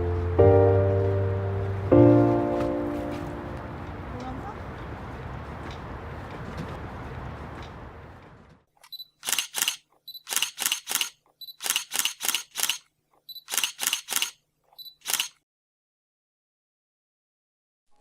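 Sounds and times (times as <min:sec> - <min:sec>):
camera shutter clicks: 0:08.8 - 0:15.4
short high focus beep: 0:08.9 - 0:09.5, 0:11.4 - 0:11.9, 0:13.3 - 0:13.8, 0:14.8 - 0:15.3.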